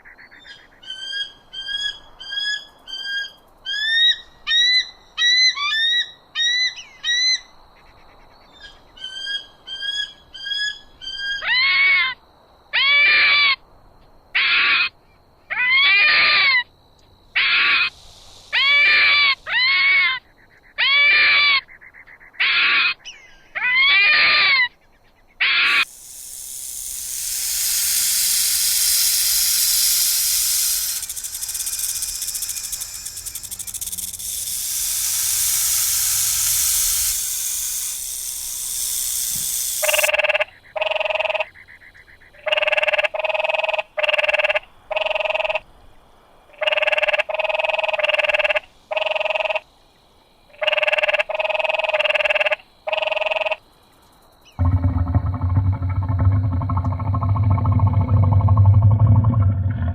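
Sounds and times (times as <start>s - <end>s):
animal hissing: 17.4s - 20.0s, 25.6s - 40.1s.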